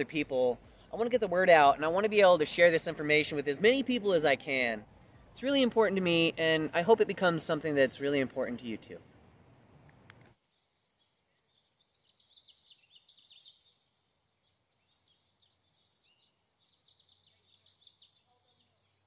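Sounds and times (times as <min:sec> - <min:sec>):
background hiss: 0:00.0 - 0:19.0
small birds chirping: 0:10.0 - 0:19.0.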